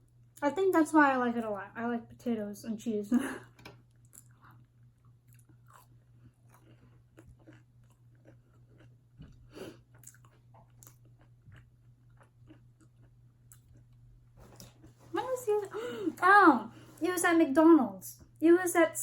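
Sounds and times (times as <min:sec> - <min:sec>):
faint low hum: 0:00.0 - 0:19.0
wet mouth chewing: 0:03.9 - 0:14.0
food crunch: 0:05.0 - 0:14.0.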